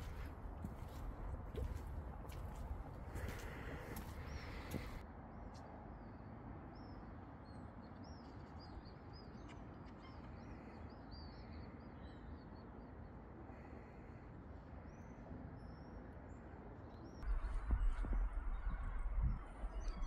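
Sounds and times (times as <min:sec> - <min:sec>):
footsteps on cobblestones: 0:00.0 - 0:05.0
small birds chirping: 0:00.0 - 0:05.0
low steady outdoor hum: 0:00.0 - 0:20.0.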